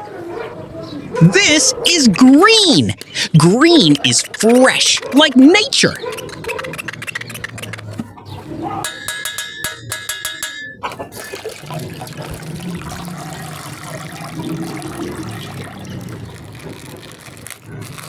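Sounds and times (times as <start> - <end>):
water sloshing and pouring: 10.9 - 18.0.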